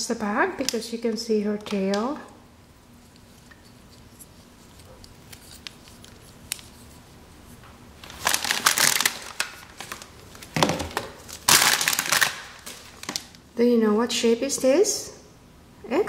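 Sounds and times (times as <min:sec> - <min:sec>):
plastic packaging crinkling: 0:03.0 - 0:07.4, 0:08.0 - 0:13.4.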